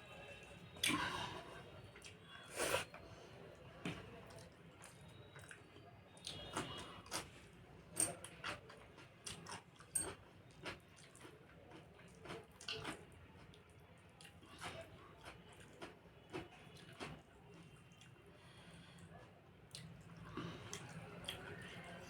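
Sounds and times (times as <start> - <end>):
wet chewing and lip-smacking: 3.8 - 7.4, 8.2 - 18.2, 19.7 - 21.8.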